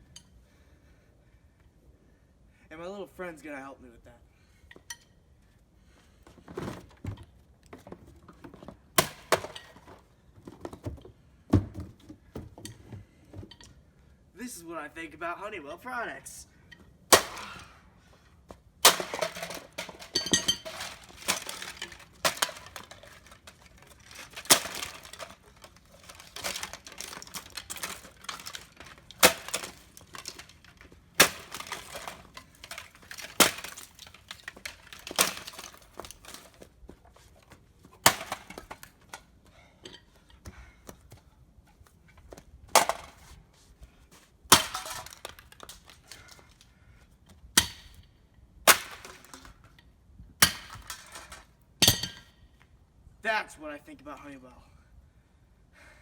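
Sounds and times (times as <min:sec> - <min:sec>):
heater struck with cracking hits: 0:17.1 - 0:17.7
broken pieces clattering: 0:18.8 - 0:36.6, 0:44.5 - 0:46.4, 0:50.4 - 0:52.3.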